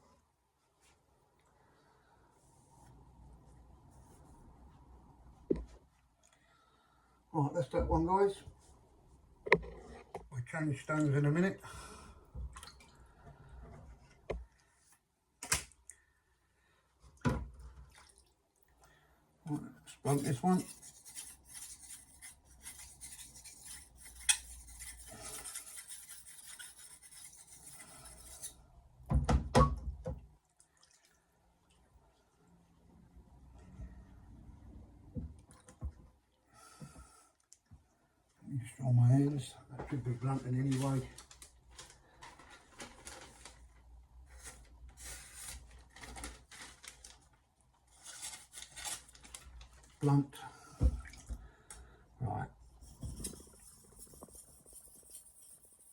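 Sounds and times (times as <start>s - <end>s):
knife scraping on whetstone: 20.1s - 28.6s, 52.8s - 55.9s
rubbing and clicking handling noise: 40.1s - 50.0s, 52.7s - 55.9s.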